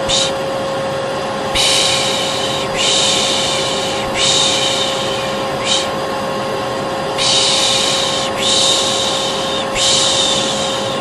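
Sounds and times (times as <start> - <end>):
person shushing: 0.0 - 0.4, 1.6 - 6.0, 7.2 - 11.0
hair dryer running: 0.0 - 11.0.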